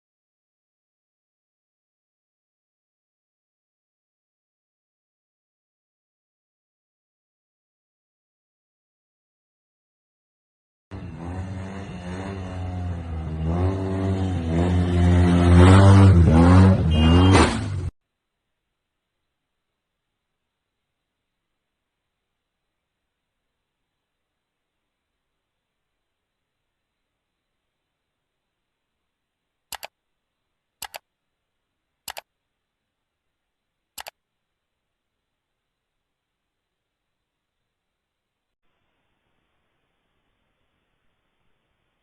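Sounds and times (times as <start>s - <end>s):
car engine accelerating through gears: 10.9s - 17.9s
sharp double clicks: 29.7s - 30.0s, 30.8s - 31.0s, 32.1s - 32.3s, 34.0s - 34.2s
faint hiss: 38.6s - 42.0s.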